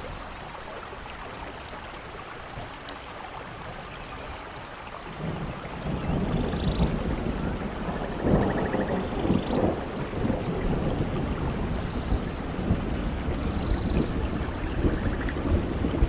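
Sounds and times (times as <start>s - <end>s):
steady rain: 0.0s - 16.0s
low rolling thunder: 5.1s - 16.0s.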